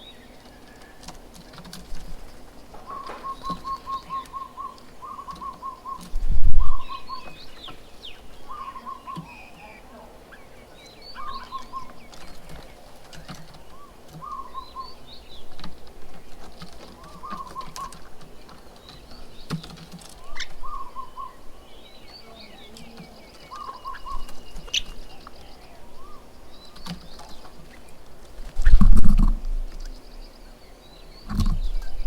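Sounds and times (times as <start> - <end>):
birds chirping and twittering: 0.0 - 32.0
sharp taps: 2.7 - 4.2.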